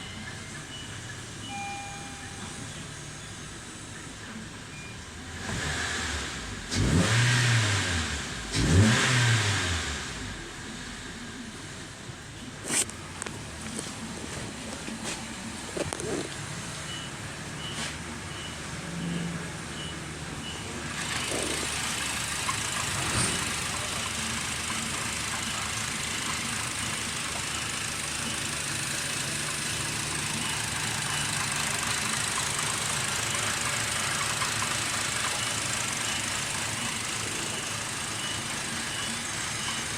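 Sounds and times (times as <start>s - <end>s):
car engine running: 5.2s - 17.1s, 19.6s - 39.9s.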